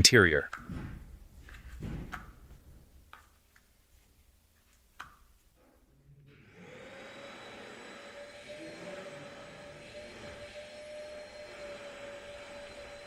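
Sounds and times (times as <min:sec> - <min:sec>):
vacuum cleaner motor whining: 0:06.3 - 0:13.0.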